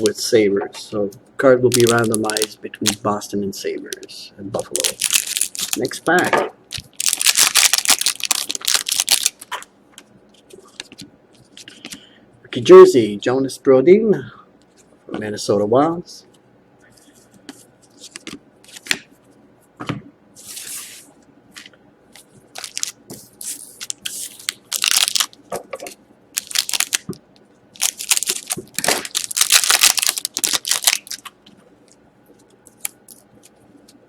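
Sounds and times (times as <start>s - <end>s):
cards and packaging rustling: 1.7s - 3.1s, 3.9s - 9.7s, 22.2s - 25.4s, 26.4s - 27.2s, 27.8s - 31.4s
wrapper crinkling and tearing: 1.7s - 3.1s, 3.9s - 9.6s, 22.5s - 25.4s, 26.4s - 27.2s, 27.8s - 31.4s.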